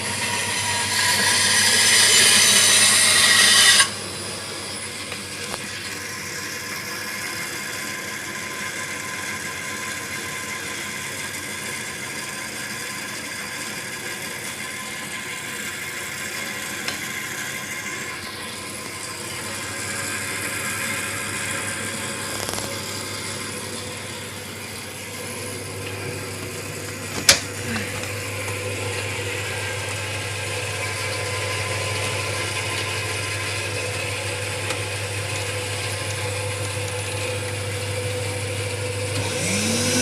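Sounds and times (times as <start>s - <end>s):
small motors whirring: 0.0s - 4.0s, 39.1s - 40.0s.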